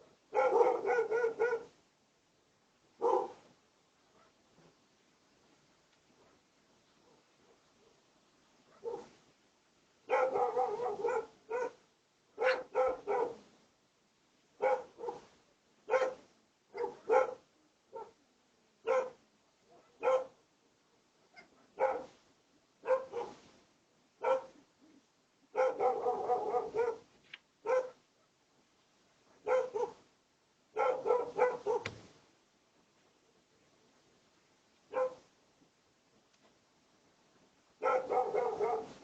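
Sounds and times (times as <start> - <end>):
dog barking: 0.3 - 1.8, 3.0 - 3.5, 4.1 - 4.4, 7.0 - 8.0, 8.7 - 9.2, 10.0 - 11.8, 12.4 - 13.5, 14.6 - 18.2, 18.8 - 20.4, 21.2 - 22.2, 22.8 - 23.4, 24.2 - 24.6, 25.5 - 28.4, 29.2 - 30.0, 30.7 - 32.0, 34.9 - 35.3, 37.8 - 39.0.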